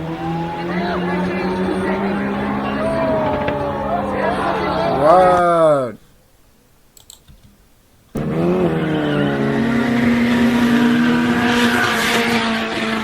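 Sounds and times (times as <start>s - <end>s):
sports car engine revving high: 0.0s - 5.3s, 8.2s - 13.0s.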